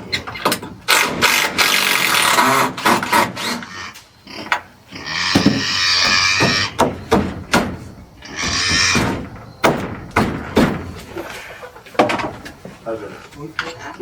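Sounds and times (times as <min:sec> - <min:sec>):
power tool bursts: 0:00.9 - 0:03.7
sharp knocks on wood: 0:05.3 - 0:11.1.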